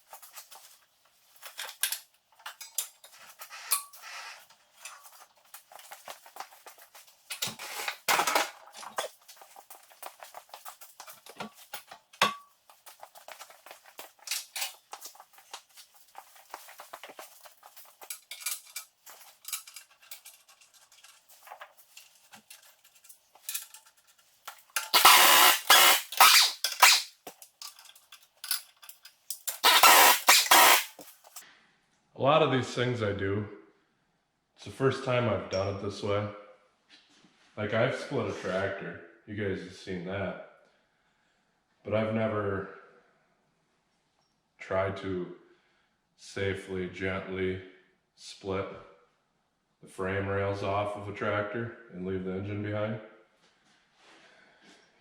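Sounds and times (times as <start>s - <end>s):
hand tools clinking on metal: 1.4s - 31.4s.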